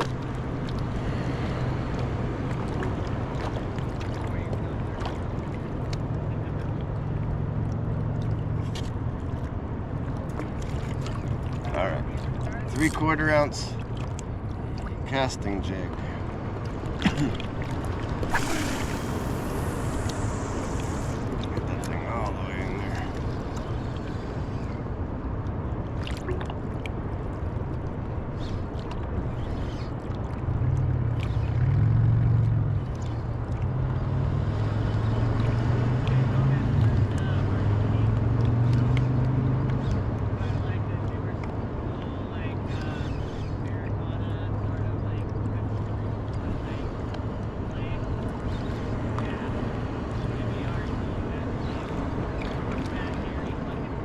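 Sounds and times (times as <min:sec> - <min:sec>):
splashes: 0:00.0 - 0:09.5, 0:10.1 - 0:15.1, 0:15.7 - 0:24.3, 0:25.9 - 0:27.4
ocean water washing: 0:00.0 - 0:54.0
wind: 0:00.0 - 0:54.0
low rumble: 0:18.2 - 0:24.4
ocean surf rushing: 0:18.2 - 0:24.4.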